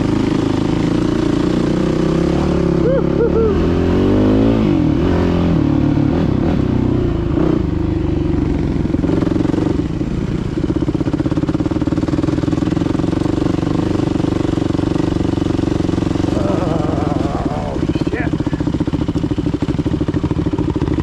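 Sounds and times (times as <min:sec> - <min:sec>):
dirt bike engine running: 0:00.0 - 0:21.0.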